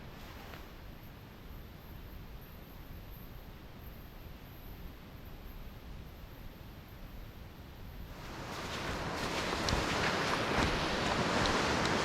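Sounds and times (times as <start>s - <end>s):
wind buffeting microphone: 8.0s - 12.0s
sliding through snow hiss: 8.1s - 12.0s.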